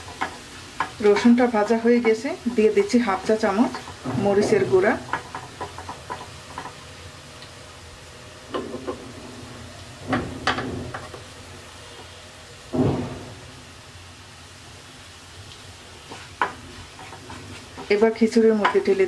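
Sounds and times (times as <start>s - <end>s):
wooden spatula scraping a pan: 0.0s - 6.8s, 15.9s - 19.0s
garlic sizzling in a pan: 0.0s - 19.0s.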